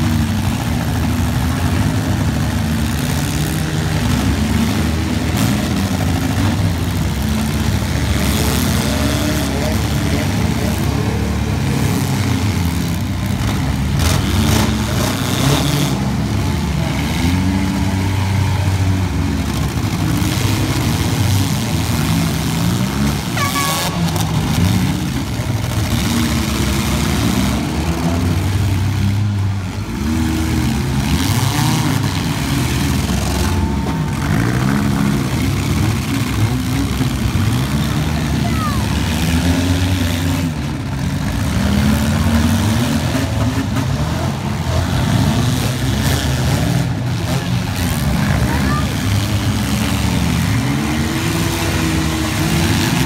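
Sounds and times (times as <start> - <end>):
car engines revving: 0.0 - 53.0.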